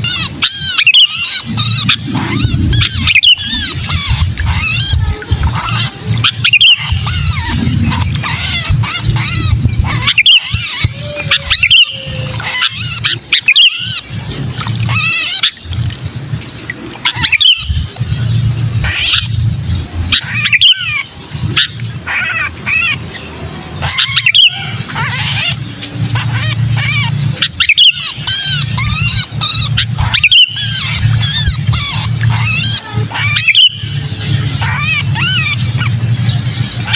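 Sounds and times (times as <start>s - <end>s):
bulbuls giving harsh calls: 0.0s - 13.7s, 23.8s - 36.9s
steady low hum: 0.0s - 22.0s.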